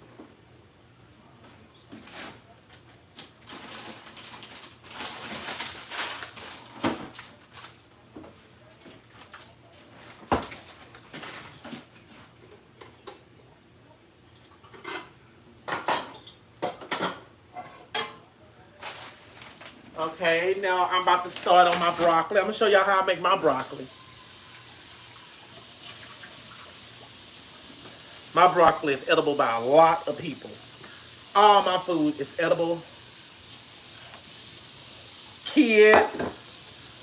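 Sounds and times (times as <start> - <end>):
pots and pans clattering: 35.8 - 36.5.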